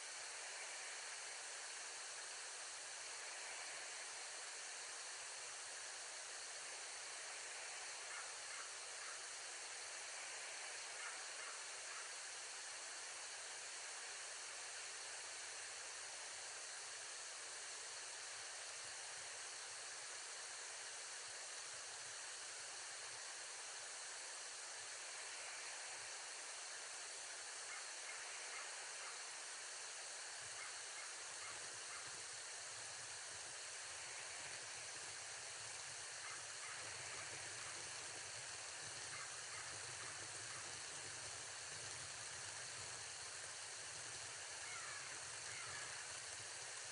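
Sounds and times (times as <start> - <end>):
steady outdoor hiss: 0.0 - 46.9
faint ticks: 33.9 - 46.9.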